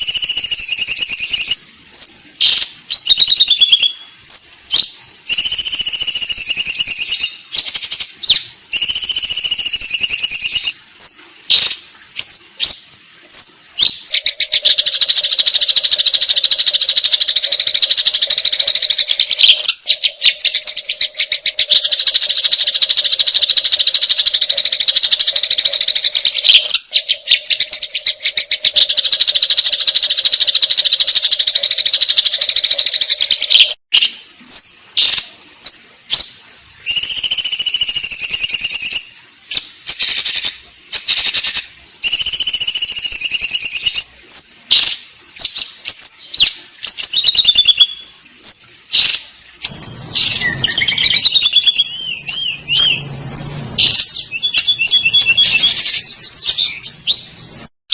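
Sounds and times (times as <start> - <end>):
sparrows chattering: 49.0 - 57.4.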